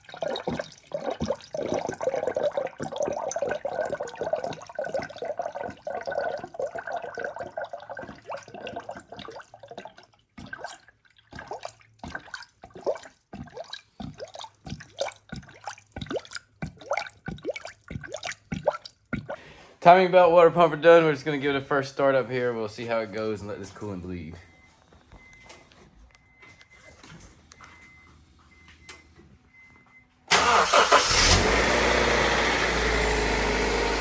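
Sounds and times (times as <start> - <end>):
liquid pouring: 0.0 - 19.4
liquid glugs and splashes: 0.0 - 19.6.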